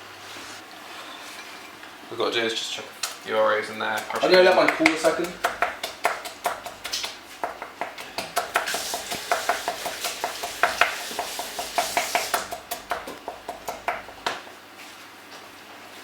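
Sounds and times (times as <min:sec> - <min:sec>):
spoon stirring mixture: 0:03.1 - 0:14.2.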